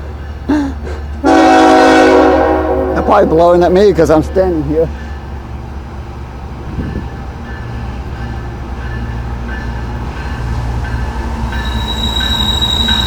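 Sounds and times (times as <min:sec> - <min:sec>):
diesel locomotive rumble: 0:00.0 - 0:13.0
wheel flanges squealing on track: 0:07.6 - 0:13.0.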